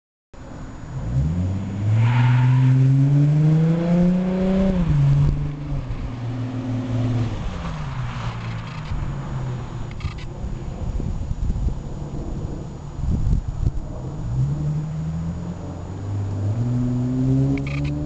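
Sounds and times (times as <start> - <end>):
car engine revving: 1.0 - 10.4, 13.8 - 18.0.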